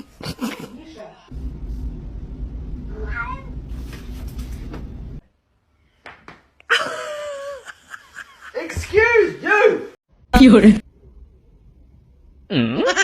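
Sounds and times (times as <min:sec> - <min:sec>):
low steady rumble: 0:01.3 - 0:05.2.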